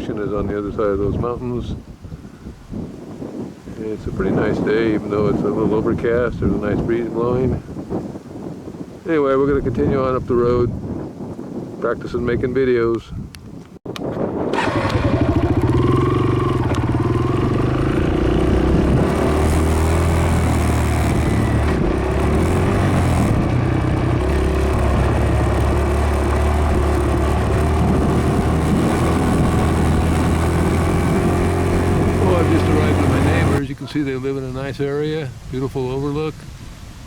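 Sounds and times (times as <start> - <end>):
dirt bike engine running: 14.6 - 33.6.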